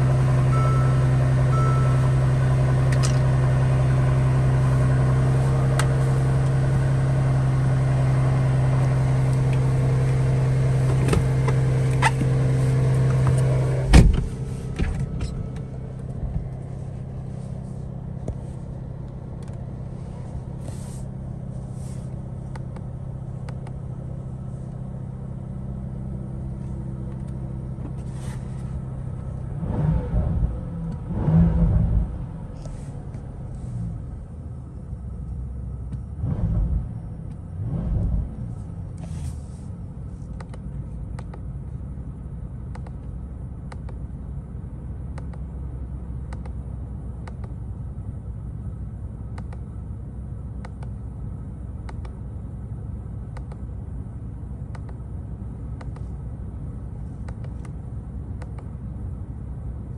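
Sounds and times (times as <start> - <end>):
low rumbling: 0.0 - 44.9
car engine idling from inside: 0.0 - 59.9.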